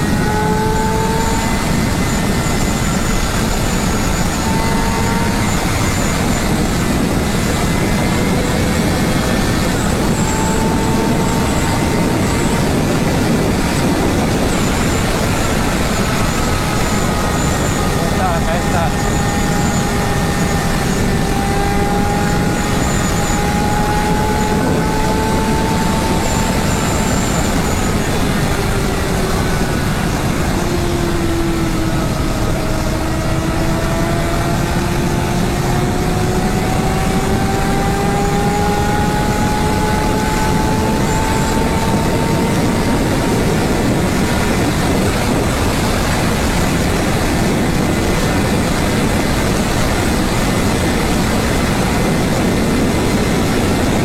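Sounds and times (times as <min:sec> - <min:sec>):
motorcycle engine accelerating: 0:00.0 - 0:54.0
wind rush: 0:00.0 - 0:54.0.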